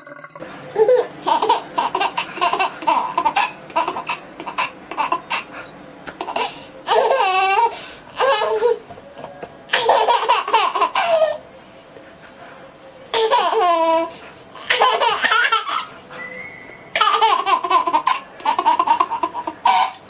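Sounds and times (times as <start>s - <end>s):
baby laughing: 0.8s - 8.8s, 9.7s - 11.4s, 13.1s - 15.9s, 16.9s - 20.0s.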